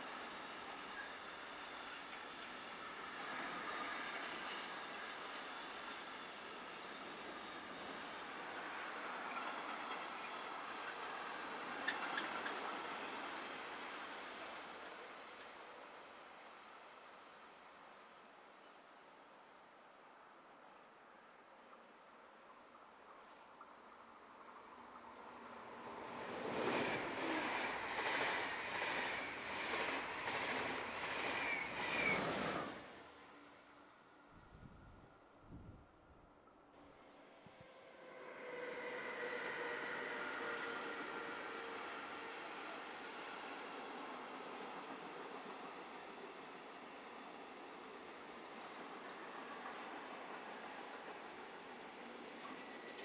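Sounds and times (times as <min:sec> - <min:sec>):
train wheels rolling on rails: 0:00.0 - 0:15.7, 0:23.1 - 0:33.4, 0:37.9 - 0:53.0
train wheels rumbling on rails: 0:23.6 - 0:33.0.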